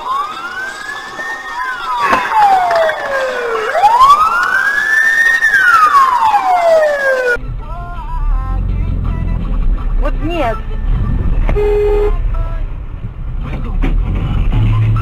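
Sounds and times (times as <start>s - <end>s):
emergency vehicle siren wailing: 0.0s - 7.4s
low rumble: 7.4s - 15.0s.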